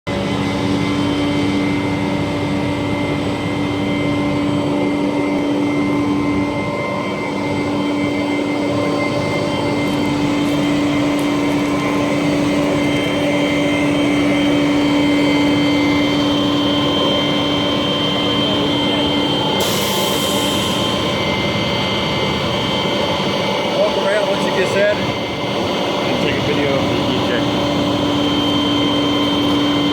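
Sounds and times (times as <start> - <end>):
air release hiss: 19.6 - 21.0.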